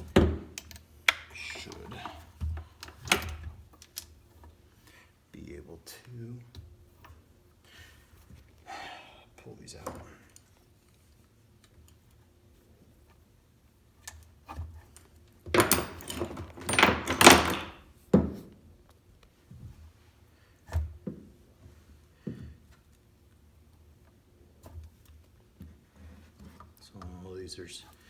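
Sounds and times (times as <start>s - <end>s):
metal parts rattling and scraping: 15.5s - 17.8s
knocks of parts handled: 15.5s - 18.5s.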